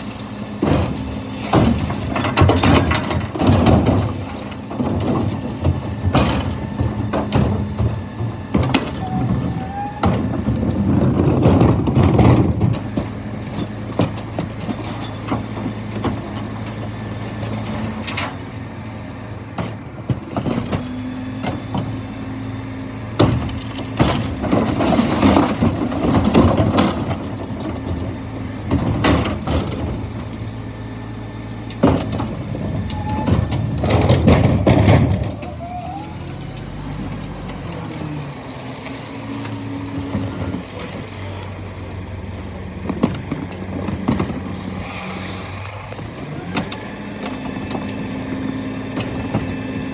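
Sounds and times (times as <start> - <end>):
truck engine hum: 0.0 - 49.9
clanks and knocks: 0.6 - 16.9, 23.2 - 30.4, 31.7 - 35.6.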